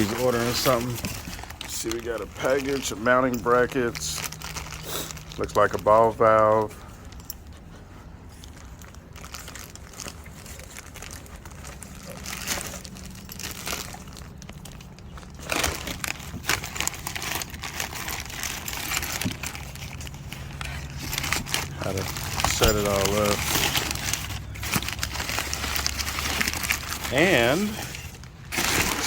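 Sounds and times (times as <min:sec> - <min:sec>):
plastic wrap and paper crinkling: 0:00.0 - 0:29.0.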